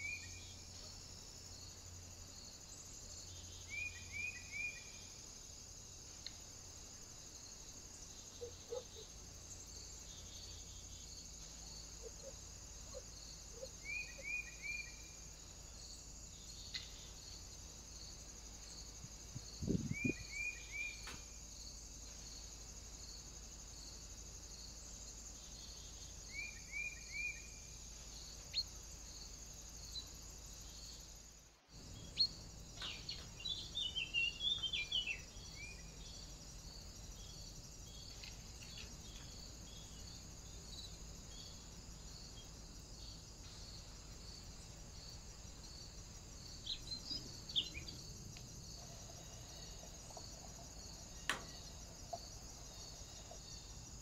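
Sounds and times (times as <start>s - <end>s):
high-pitched hiss: 13.8s - 54.0s
birds chirping: 46.6s - 48.1s
sharp tick: 51.3s - 51.5s.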